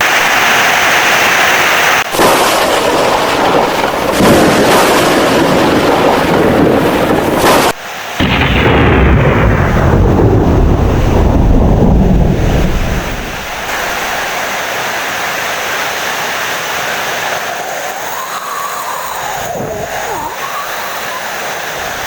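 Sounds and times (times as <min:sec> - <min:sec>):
heavy rain hissing: 0:00.0 - 0:22.0
thunder rumbling: 0:02.0 - 0:14.8, 0:17.3 - 0:22.0.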